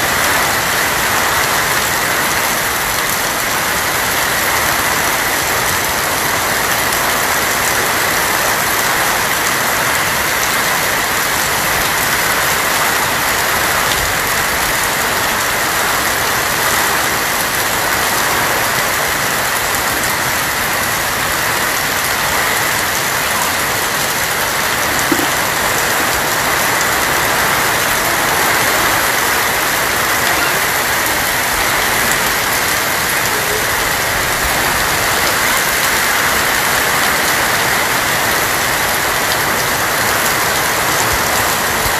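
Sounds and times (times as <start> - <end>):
heavy rain on a tin roof: 0.0 - 41.9.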